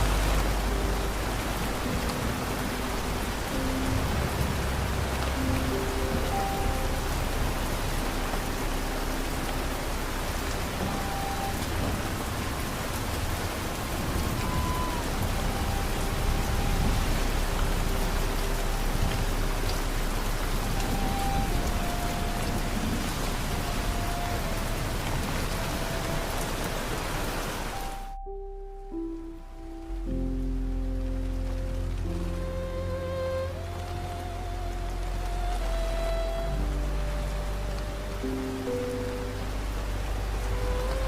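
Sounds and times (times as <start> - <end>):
heavy rain falling: 0.0 - 41.0
soft music: 0.0 - 41.0.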